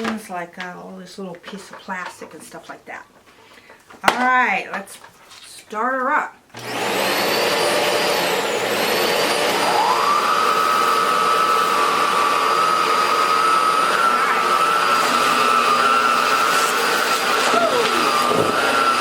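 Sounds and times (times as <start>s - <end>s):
vacuum cleaner motor whine: 6.6s - 19.0s.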